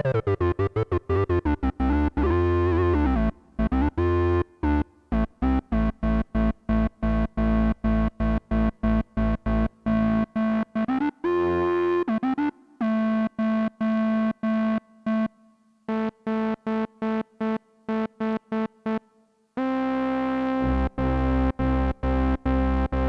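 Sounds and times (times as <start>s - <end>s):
synthesizer notes: 11.2s - 12.3s.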